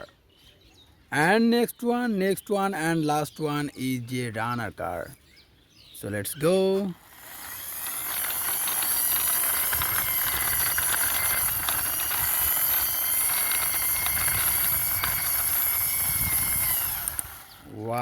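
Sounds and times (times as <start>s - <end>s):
toy car wheels rolling: 6.8s - 18.0s.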